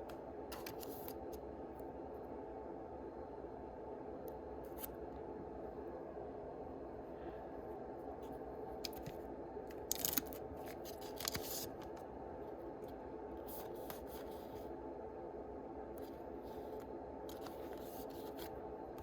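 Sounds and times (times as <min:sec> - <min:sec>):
foil wrapper crinkling and tearing: 0:09.8 - 0:11.7.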